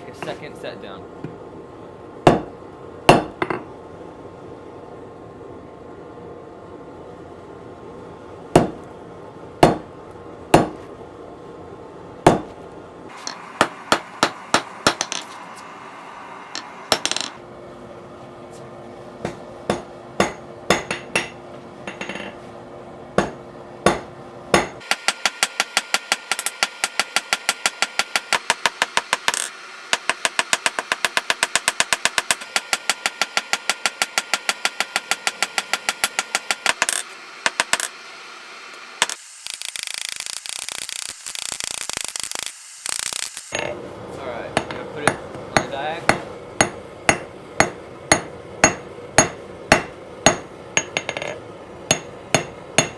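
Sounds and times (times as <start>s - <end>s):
hammer striking steel on anvil: 2.3s - 2.5s, 3.1s - 3.6s, 8.6s - 8.8s, 9.6s - 9.9s, 10.6s - 10.8s, 12.3s - 12.5s, 13.1s - 15.6s, 16.5s - 17.4s, 19.2s - 22.4s, 23.2s - 37.9s, 44.6s - 52.9s.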